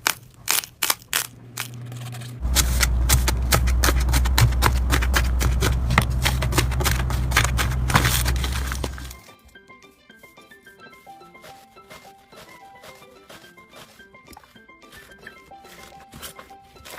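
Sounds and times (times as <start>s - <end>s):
steady low hum: 1.2s - 9.2s.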